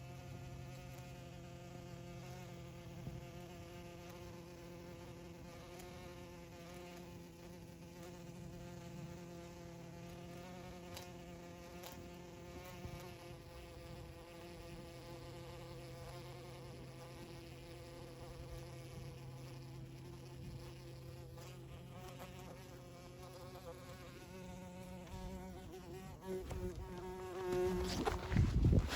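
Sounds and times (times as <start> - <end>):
bee buzzing in flight: 0.0 - 28.9.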